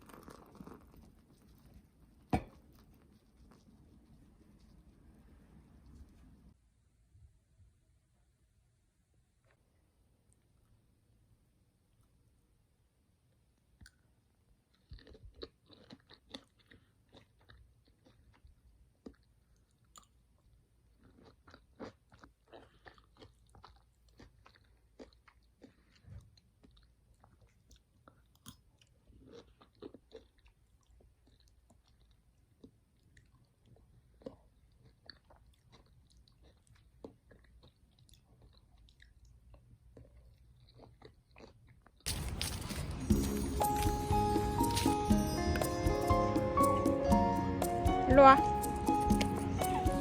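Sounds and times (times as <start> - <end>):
person chewing and crunching food: 0.0 - 5.1, 13.3 - 47.9, 48.5 - 50.0
music: 42.2 - 50.0.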